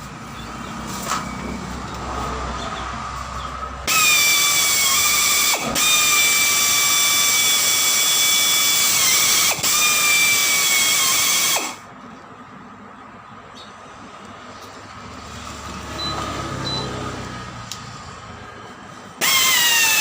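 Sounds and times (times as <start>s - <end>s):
high-speed power tool whining: 3.8s - 11.8s, 19.2s - 20.0s.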